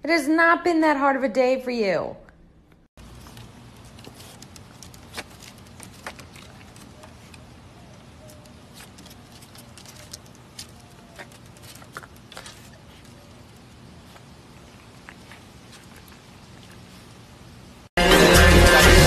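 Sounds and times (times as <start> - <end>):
outdoor background hum: 0.0 - 17.9
animal footsteps on wooden deck: 3.0 - 13.1.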